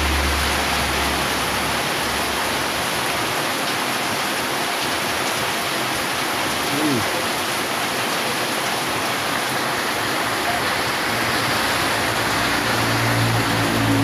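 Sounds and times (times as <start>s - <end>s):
vehicle engine humming: 0.0s - 3.2s, 10.0s - 14.0s
heavy rain hissing: 0.0s - 14.0s.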